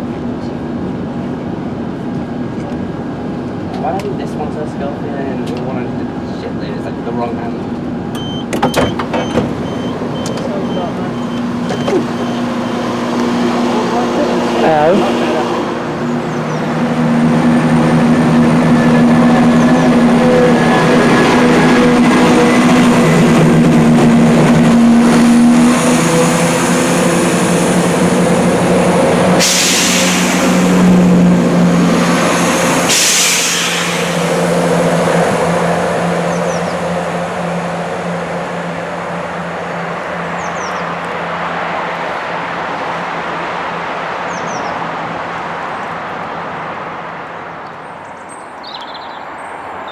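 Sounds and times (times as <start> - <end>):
diesel train engine humming: 0.0 - 48.1
short air hisses: 29.4 - 30.9, 32.7 - 34.4.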